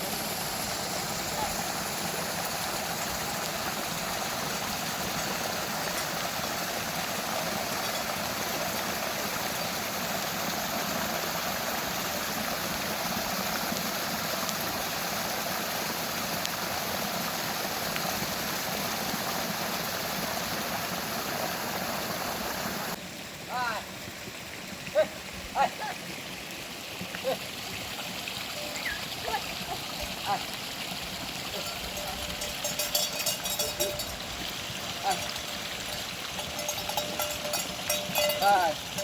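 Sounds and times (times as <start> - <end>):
running storm water: 0.0 - 39.0
heavy rain: 27.2 - 39.0.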